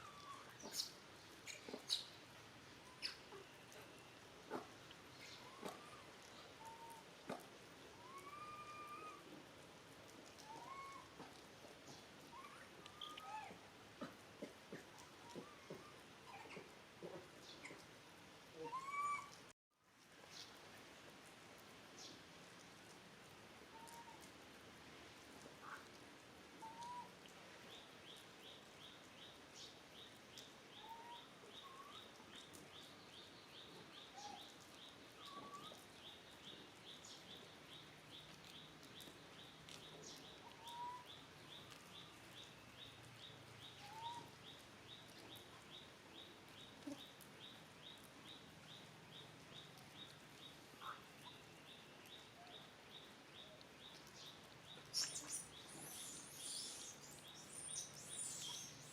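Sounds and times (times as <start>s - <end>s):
high animal chirp: 54.9s - 58.9s.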